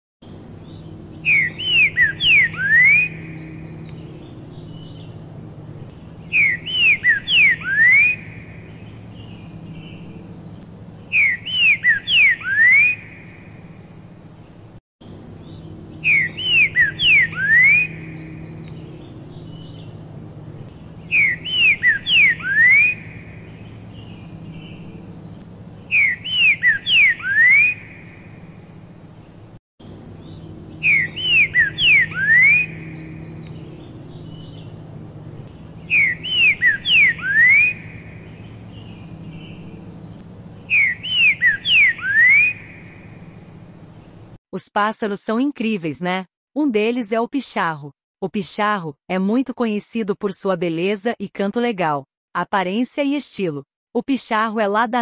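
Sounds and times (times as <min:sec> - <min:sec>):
faint low hum: 0:00.2 - 0:44.4
bird whistled song: 0:00.6 - 0:13.5, 0:15.4 - 0:28.3, 0:30.2 - 0:43.1.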